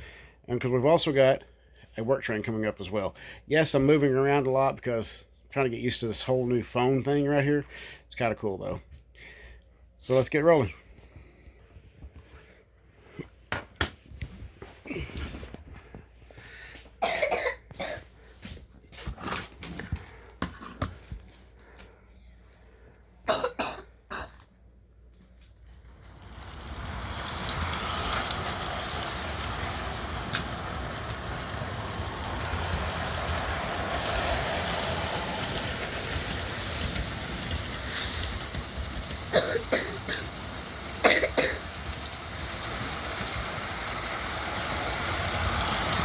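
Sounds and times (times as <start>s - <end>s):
model train running on track: 25.3s - 46.0s
scattered clicks and knocks: 25.8s - 46.0s.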